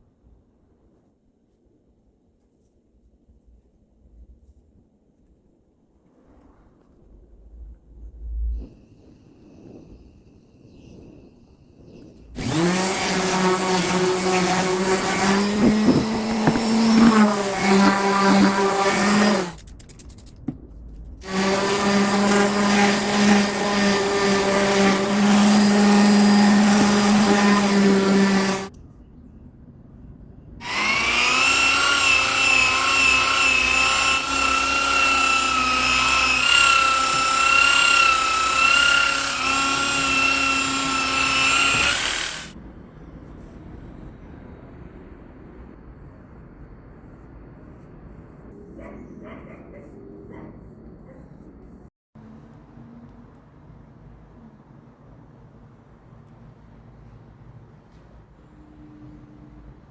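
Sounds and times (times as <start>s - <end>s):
power tool motor whining: 12.4s - 20.3s, 21.2s - 28.7s, 30.6s - 42.6s.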